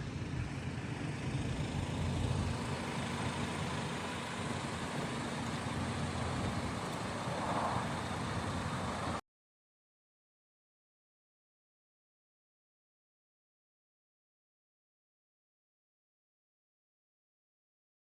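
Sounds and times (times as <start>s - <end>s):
vehicle engine rumbling: 0.0s - 9.2s.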